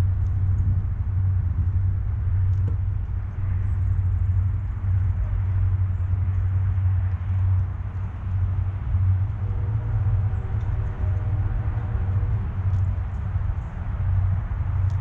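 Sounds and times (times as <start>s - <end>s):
steady low rumble: 0.0s - 15.0s
faint high ticks: 6.3s - 8.5s, 12.1s - 15.0s.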